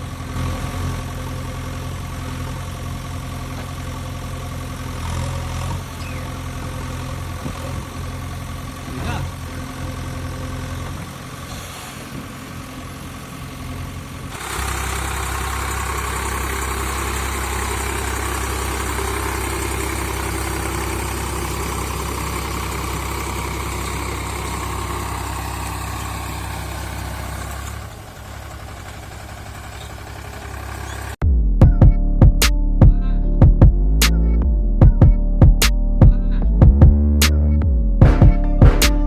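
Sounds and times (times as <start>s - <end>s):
engine idling: 0.0s - 39.0s.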